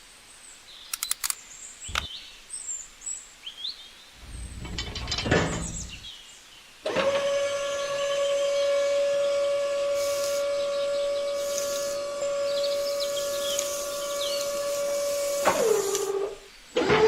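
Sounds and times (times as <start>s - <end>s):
small electric motor whining: 6.9s - 17.0s.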